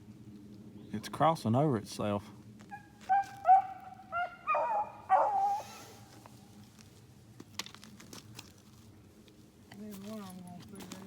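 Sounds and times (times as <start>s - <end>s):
hounds baying: 2.7s - 5.8s.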